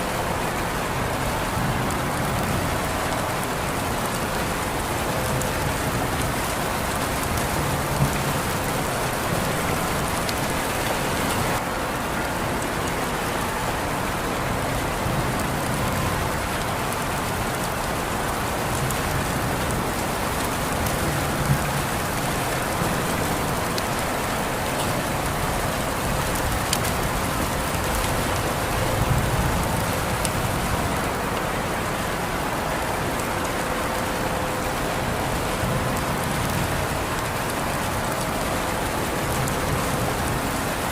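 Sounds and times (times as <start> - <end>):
rain pattering: 0.0 - 40.9
sharp rain drop ticks: 14.3 - 31.5.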